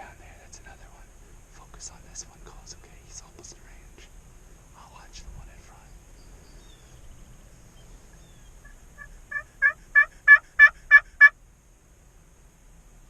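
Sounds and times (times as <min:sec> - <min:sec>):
turkey yelping: 0:08.6 - 0:11.3.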